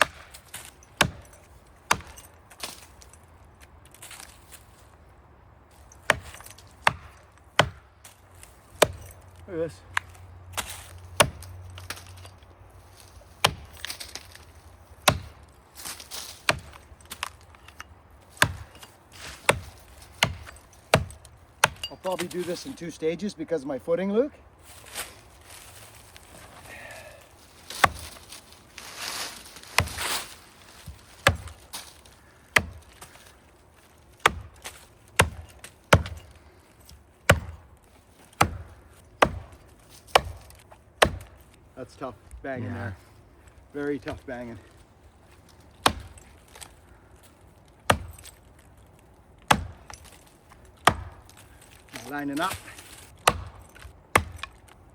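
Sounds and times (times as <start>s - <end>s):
axe striking tree trunk: 0.0s - 3.0s, 6.0s - 9.2s, 9.9s - 12.2s, 13.4s - 22.5s, 27.7s - 28.4s, 29.7s - 33.3s, 34.2s - 36.4s, 37.2s - 41.6s, 45.8s - 46.7s, 47.8s - 48.4s, 49.4s - 54.8s.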